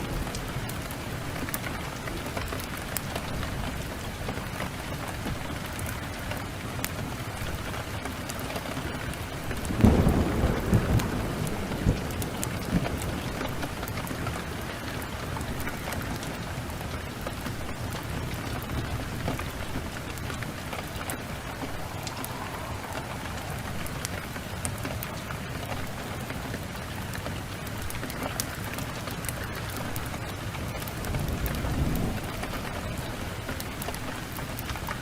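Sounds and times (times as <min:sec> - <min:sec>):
steady rain: 0:00.0 - 0:35.0
thunder rumble: 0:07.4 - 0:35.0.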